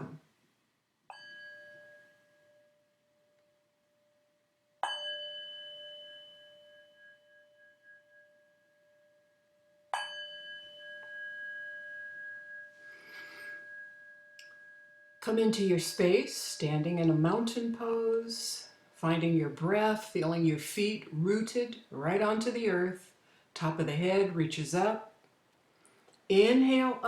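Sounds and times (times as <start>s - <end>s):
metal chime ringing: 1.1s - 3.0s, 4.8s - 16.3s.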